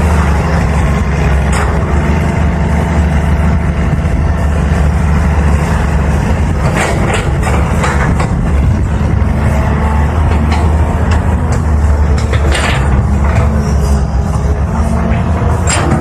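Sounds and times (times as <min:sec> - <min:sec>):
excavator diesel engine running: 0:00.0 - 0:16.0
excavator bucket knocks and scrapes: 0:10.3 - 0:13.8, 0:15.6 - 0:16.0.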